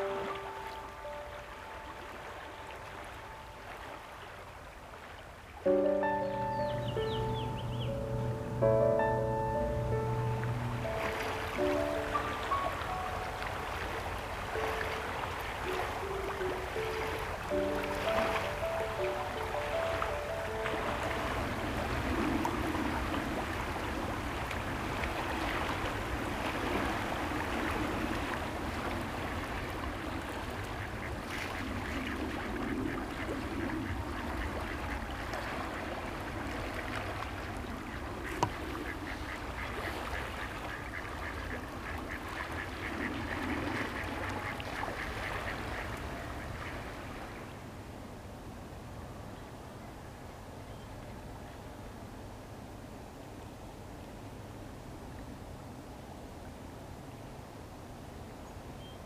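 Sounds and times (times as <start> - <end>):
outdoor ambience: 5.6 - 56.3
ducks quacking: 38.0 - 46.8.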